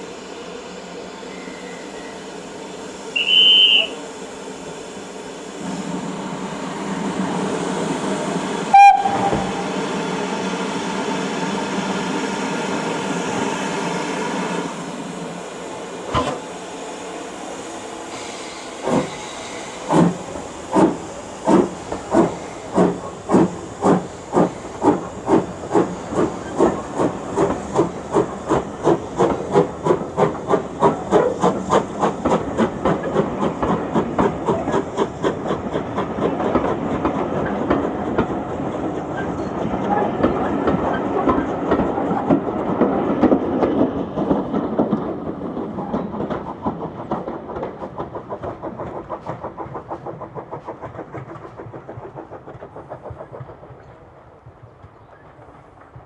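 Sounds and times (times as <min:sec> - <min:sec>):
steam hissing: 0:00.0 - 0:39.3, 0:40.1 - 0:54.7
steam locomotive exhaust chuffs: 0:00.0 - 0:56.0
locomotive whistle toot: 0:03.1 - 0:04.0, 0:08.7 - 0:09.8.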